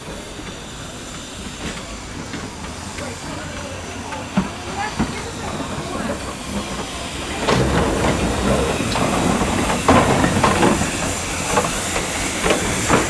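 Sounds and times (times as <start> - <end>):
steam hissing: 0.0 - 13.0
low rumbling: 6.4 - 11.3
irregular knocks: 7.3 - 11.2.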